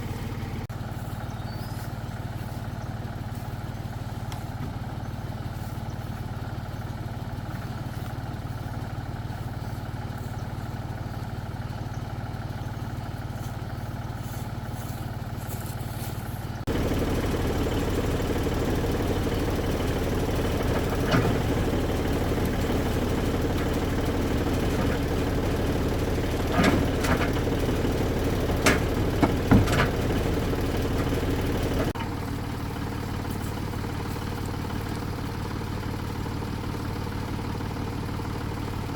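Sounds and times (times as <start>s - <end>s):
tractor engine running: 0.0s - 38.9s
short clanks and knocks: 17.2s - 32.1s.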